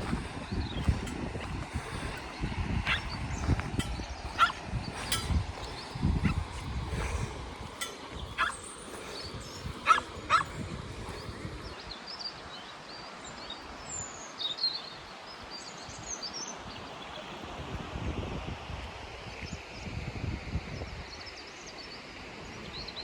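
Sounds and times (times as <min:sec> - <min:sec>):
river water rushing: 0:00.0 - 0:15.8
small birds chirping: 0:00.0 - 0:17.4.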